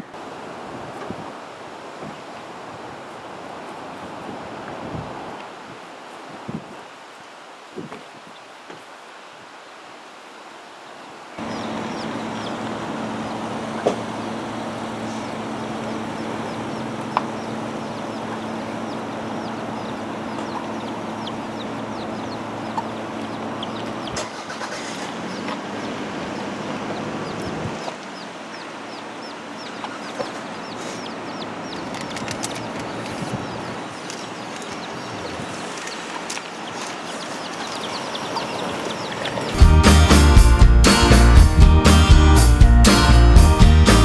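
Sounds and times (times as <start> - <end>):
low hum: 11.4 - 22.7
high falling peeps: 11.4 - 24.1, 37.1 - 44.0
chickens clucking: 11.4 - 40.3.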